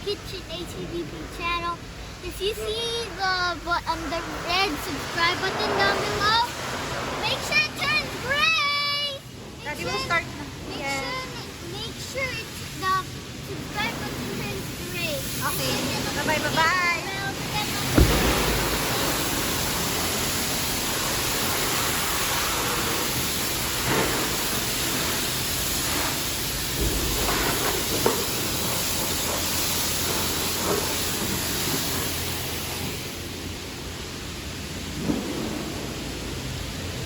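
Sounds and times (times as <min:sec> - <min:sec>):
pressure washer spraying water: 0:14.0 - 0:34.4
small knocks: 0:17.9 - 0:19.4.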